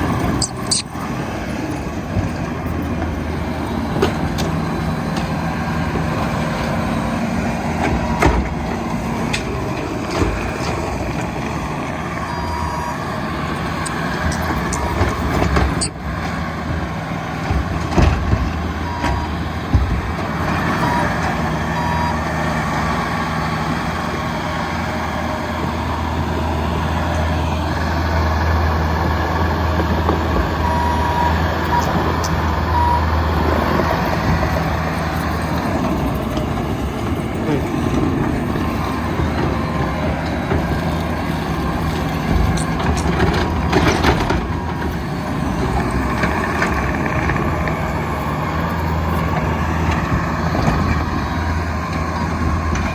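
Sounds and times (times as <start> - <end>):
diesel engine running: 0.0 - 52.9
clunks: 0.2 - 6.9, 7.6 - 22.3, 25.8 - 52.9
backup alarm beeping: 0.4 - 0.9.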